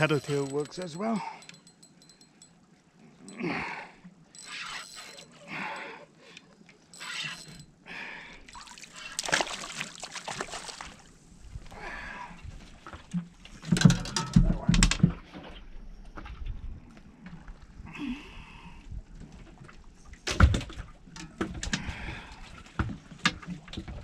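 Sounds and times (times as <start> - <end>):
knocks and clunks on a boat: 12.6 - 17.4, 19.0 - 24.0.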